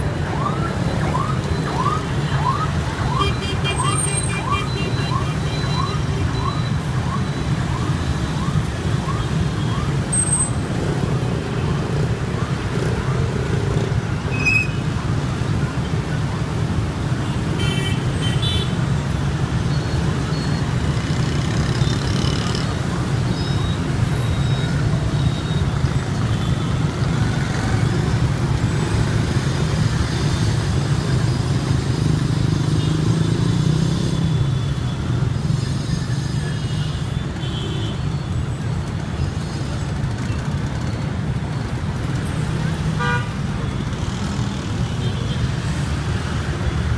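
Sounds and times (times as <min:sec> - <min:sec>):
motorbike engines droning: 0:00.0 - 0:15.8.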